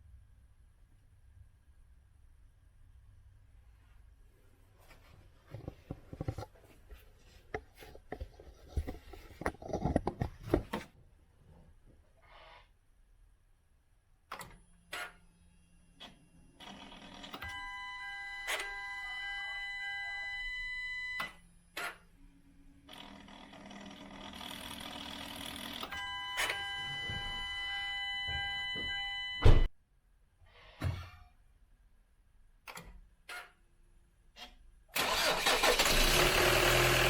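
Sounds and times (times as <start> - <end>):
car electronic warning chime: 17.4 - 21.4, 25.9 - 29.7.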